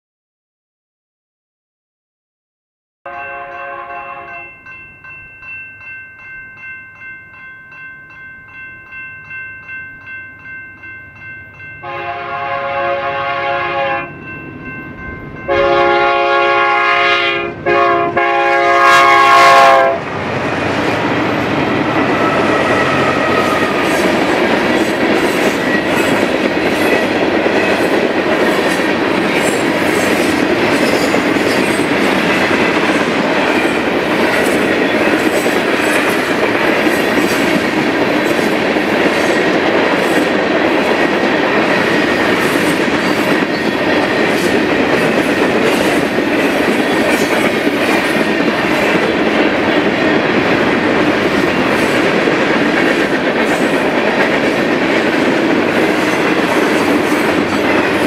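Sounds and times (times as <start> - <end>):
locomotive air horn: 3.1 - 4.5, 11.8 - 14.2, 15.5 - 20.0, 22.2 - 23.9
pulsing crossing bell ringing: 3.1 - 12.6, 14.0 - 16.2, 30.4 - 36.4.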